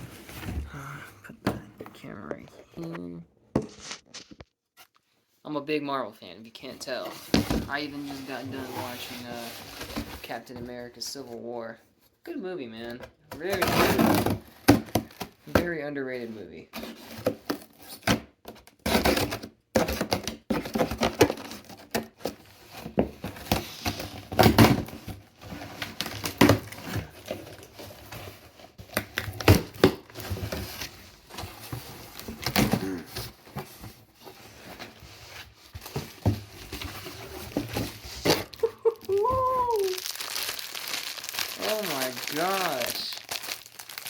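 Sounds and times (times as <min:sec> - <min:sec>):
cardboard box packaging rustling: 0:00.0 - 0:00.9, 0:03.6 - 0:04.4, 0:06.8 - 0:10.8, 0:16.7 - 0:44.0.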